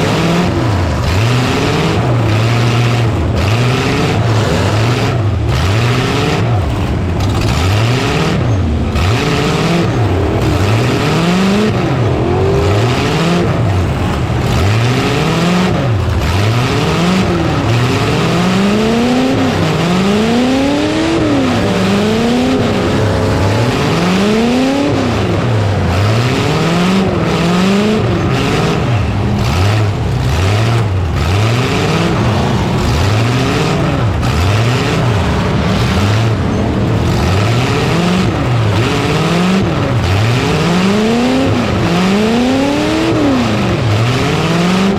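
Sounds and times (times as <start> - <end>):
truck engines revving hard: 0.0 - 44.9.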